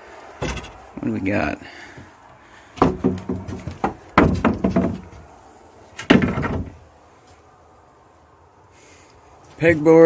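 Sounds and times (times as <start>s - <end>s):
stored items knocking and clattering: 0.4s - 0.9s, 2.8s - 5.3s, 6.0s - 6.8s.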